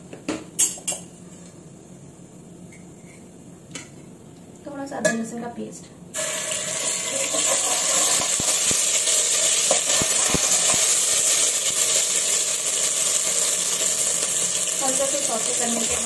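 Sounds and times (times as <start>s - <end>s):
paste sizzling in hot oil: 6.2s - 16.0s.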